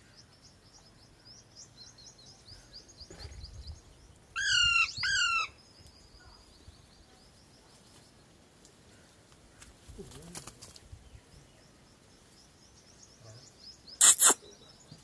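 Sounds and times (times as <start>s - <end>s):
high bird chirping: 11.1s - 15.0s.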